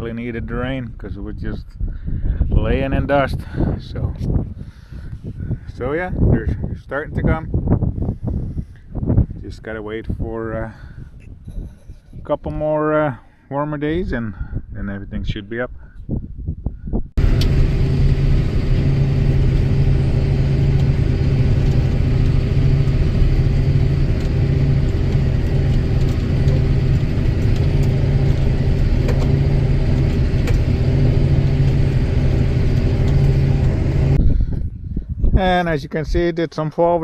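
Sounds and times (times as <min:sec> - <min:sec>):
vehicle engine running: 0:17.2 - 0:34.2.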